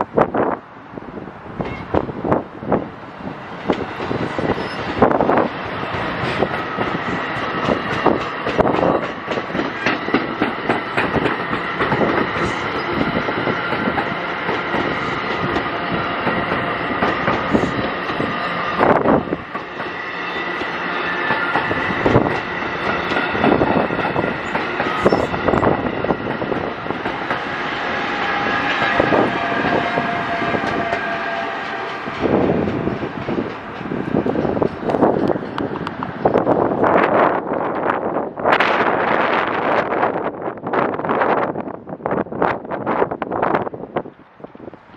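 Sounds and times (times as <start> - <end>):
train passing on rails: 0.0 - 44.9
wheels clicking over rail joints: 3.5 - 27.5.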